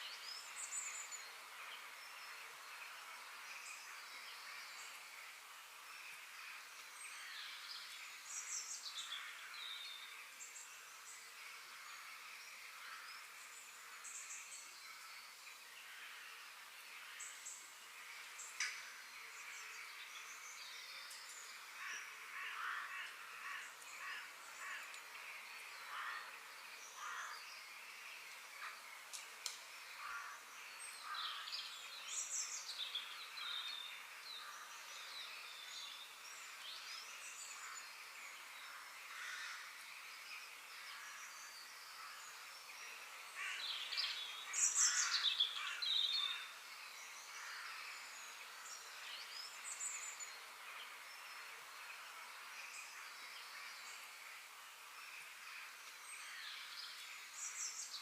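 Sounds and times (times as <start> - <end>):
outdoor background hiss: 0.0 - 58.0
birds chirping and calling: 43.3 - 48.4.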